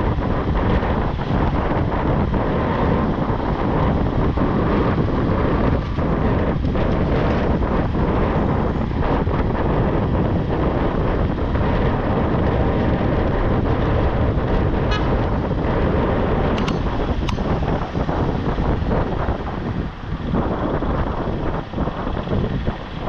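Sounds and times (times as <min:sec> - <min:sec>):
road traffic rumble: 0:00.0 - 0:23.0
wind buffeting microphone: 0:00.0 - 0:23.0.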